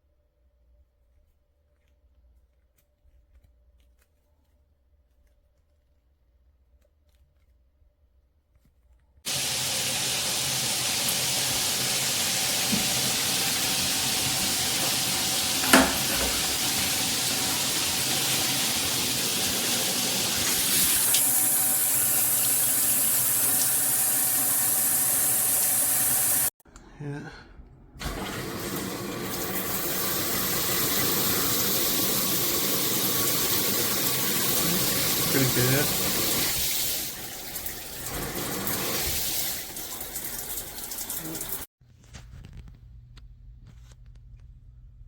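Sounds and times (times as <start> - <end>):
shower water spraying: 9.3 - 26.5, 28.0 - 41.7
knock: 15.6 - 16.6.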